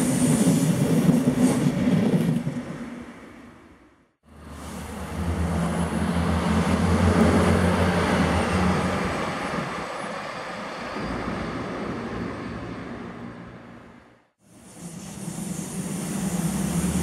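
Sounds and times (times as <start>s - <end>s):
diesel railcar engine hum: 4.2s - 17.0s
train wheels rolling on rails: 14.6s - 17.0s.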